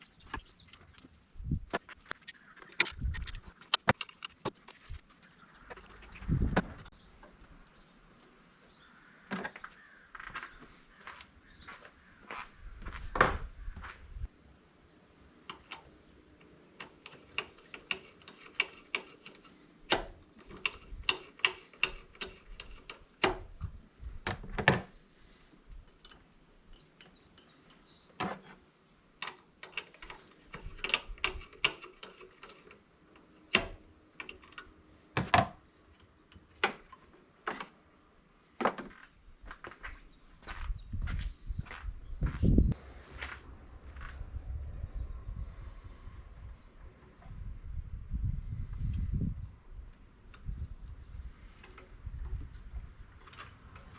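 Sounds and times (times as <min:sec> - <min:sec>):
hand tools clicking and clinking: 0:01.9 - 0:04.9.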